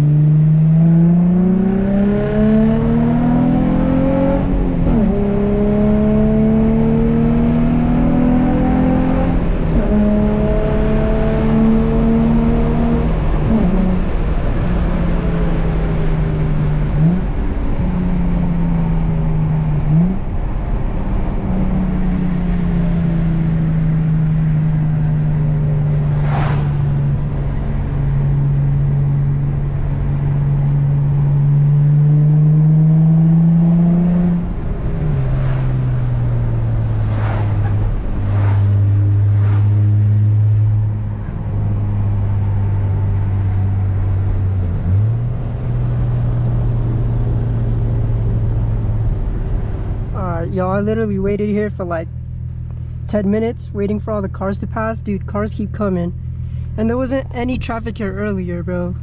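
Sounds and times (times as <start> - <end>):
car engine and exhaust droning: 0.0 - 59.0
brief sharp sounds: 26.2 - 27.0.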